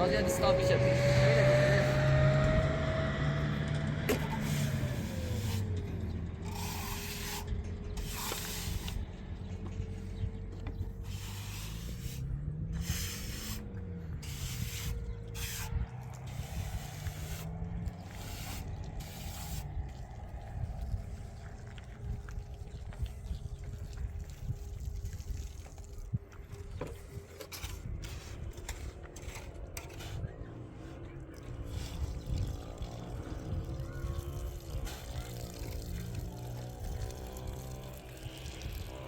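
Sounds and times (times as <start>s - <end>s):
motor running: 0.0s - 20.7s.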